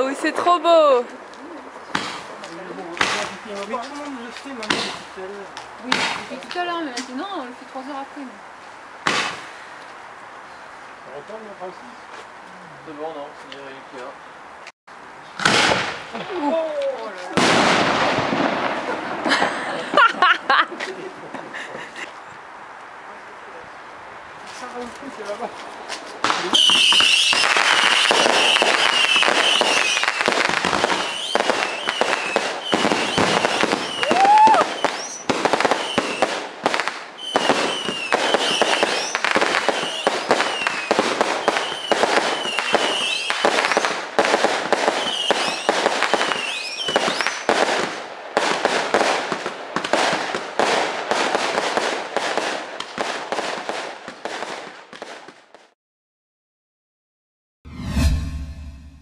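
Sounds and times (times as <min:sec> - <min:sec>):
fireworks bangs and crackle: 0:00.0 - 0:08.2, 0:08.8 - 0:10.0, 0:15.3 - 0:22.1, 0:24.4 - 0:55.8
high whistling fireworks: 0:01.8 - 0:08.1, 0:08.8 - 0:10.6, 0:15.3 - 0:20.6, 0:24.5 - 0:55.7.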